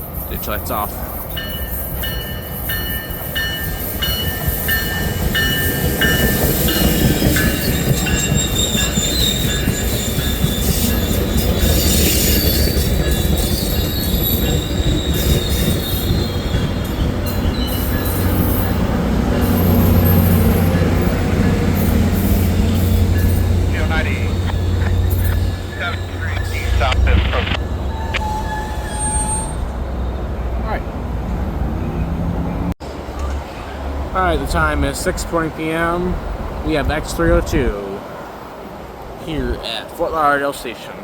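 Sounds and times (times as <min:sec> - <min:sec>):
steel wheels squealing on rails: 0:00.0 - 0:26.8, 0:27.6 - 0:30.8
diesel locomotive engine: 0:00.0 - 0:40.2
train bell ringing: 0:00.3 - 0:26.8.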